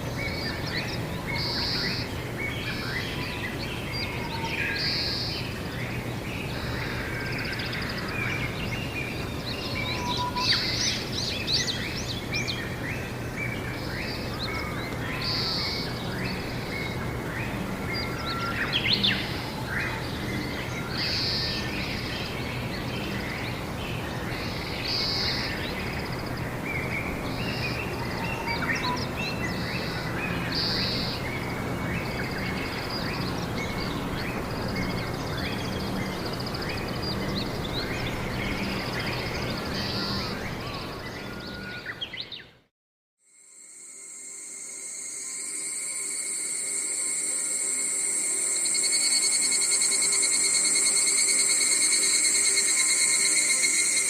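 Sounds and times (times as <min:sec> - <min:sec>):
wild birds chirping: 0:00.0 - 0:42.7, 0:45.6 - 0:54.0.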